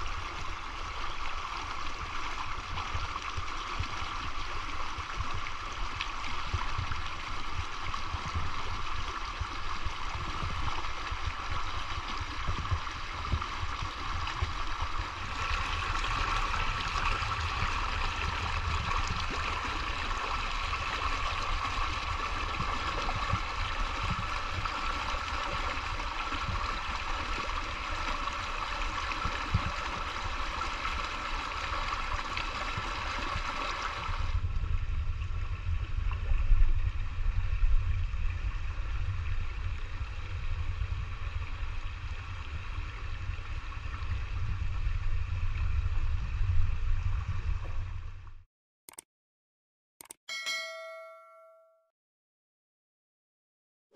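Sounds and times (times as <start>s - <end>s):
river babbling over stones: 0.0s - 34.2s
low rumble: 34.2s - 48.4s.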